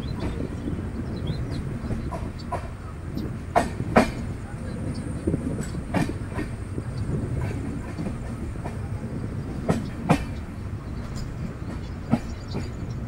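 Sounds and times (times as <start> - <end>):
train wheels rumbling on rail: 0.0 - 13.0
wheels clacking over rail joints: 0.0 - 13.0.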